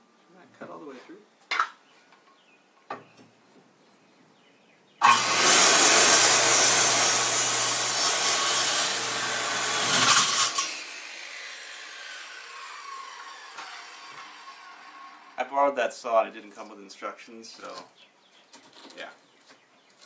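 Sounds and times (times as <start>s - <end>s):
power saw cutting lumber: 5.0s - 15.4s
saw winding down whine: 5.0s - 15.4s.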